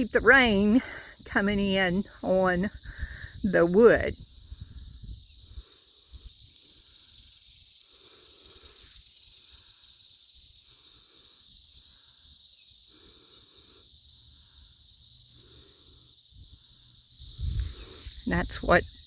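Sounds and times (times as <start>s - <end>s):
insects chirring: 0.0s - 19.0s
wind rumble on microphone: 2.7s - 5.7s, 17.2s - 19.0s.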